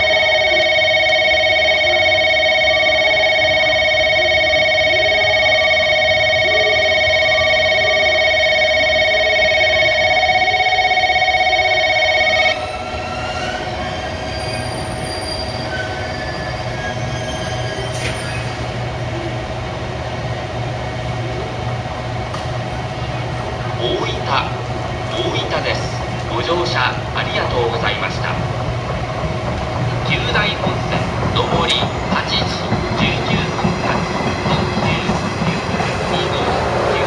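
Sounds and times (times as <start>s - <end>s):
electronic train warning tone: 0.0s - 16.6s, 30.0s - 37.0s
train rolling with low hum: 0.0s - 37.0s.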